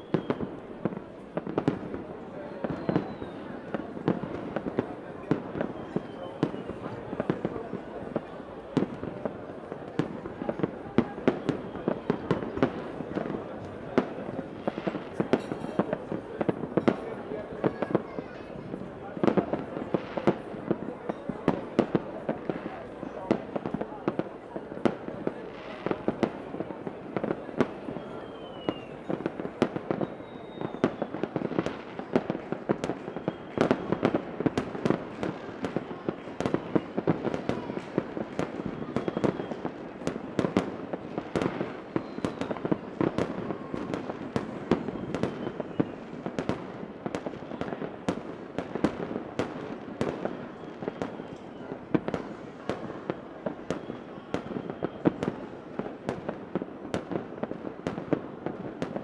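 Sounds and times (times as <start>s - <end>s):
fireworks bangs and crackles: 0.0s - 59.0s
falling whistle: 2.8s - 3.4s, 28.0s - 28.9s, 30.0s - 31.1s.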